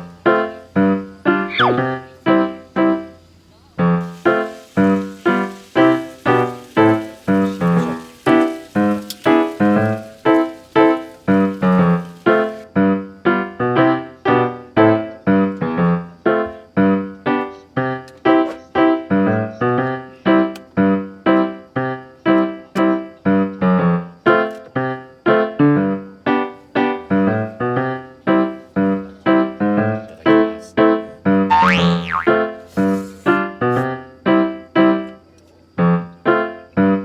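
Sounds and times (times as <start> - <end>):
bouncy piano tune: 0.0 - 3.2, 3.8 - 19.8, 31.3 - 32.6.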